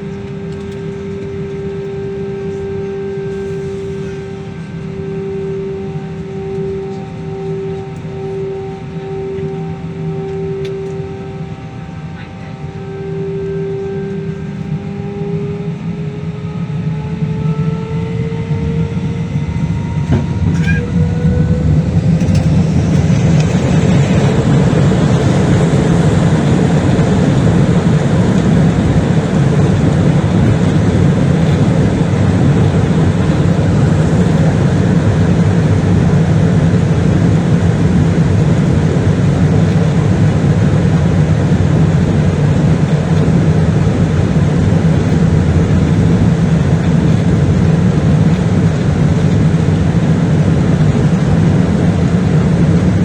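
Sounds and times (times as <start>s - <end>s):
jet engines whining: 0.0s - 53.0s
runway rolling noise: 21.2s - 53.0s.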